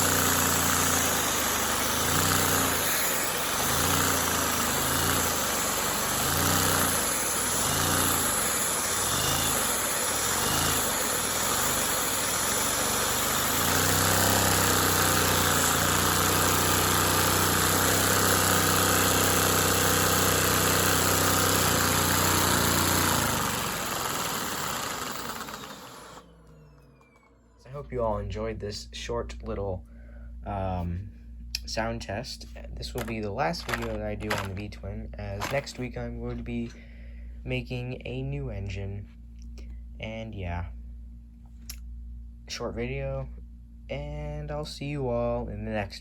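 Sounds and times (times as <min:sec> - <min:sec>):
toy engine running: 0:00.0 - 0:26.3, 0:33.0 - 0:34.6, 0:35.4 - 0:35.8.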